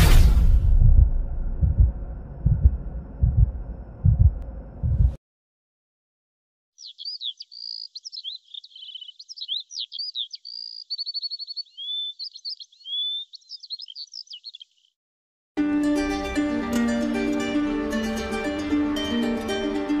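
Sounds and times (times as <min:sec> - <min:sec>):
songbird singing: 0:06.8 - 0:15.0
plucked string music: 0:15.6 - 0:20.0.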